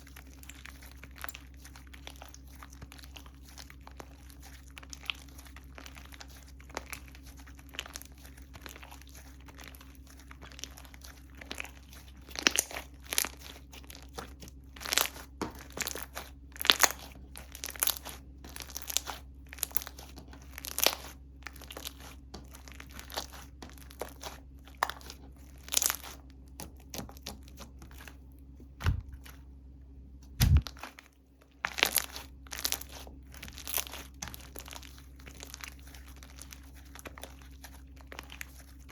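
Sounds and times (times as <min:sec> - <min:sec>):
dull thumps: 0:28.7 - 0:29.2, 0:30.2 - 0:30.7
sticky slime pops and crackles: 0:28.8 - 0:29.2, 0:30.3 - 0:31.0.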